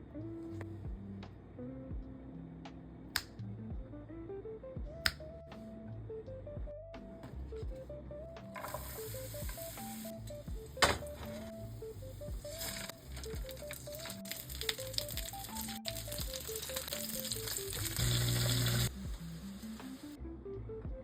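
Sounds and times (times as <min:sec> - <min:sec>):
simple background melody: 0:00.0 - 0:21.0
sausage sizzling in a pan: 0:08.6 - 0:10.3, 0:12.4 - 0:18.9.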